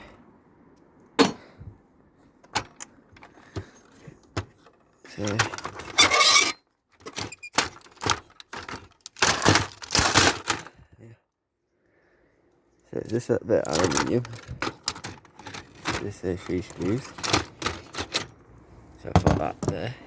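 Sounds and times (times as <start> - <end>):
clattering and scraping: 2.4 - 10.7, 13.1 - 19.9
metal parts clinking and rattling: 2.4 - 10.7, 13.1 - 18.4.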